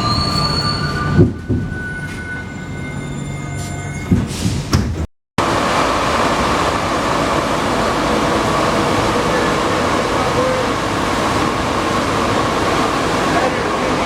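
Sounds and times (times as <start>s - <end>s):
running train rushing noise: 0.0s - 14.0s
metro train whining hum: 5.4s - 14.0s.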